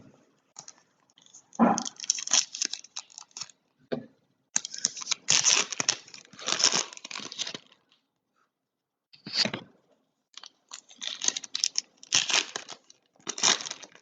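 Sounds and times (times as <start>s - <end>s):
foil wrappers tearing and crinkling: 0.6s - 3.6s, 4.6s - 7.8s, 10.4s - 14.0s.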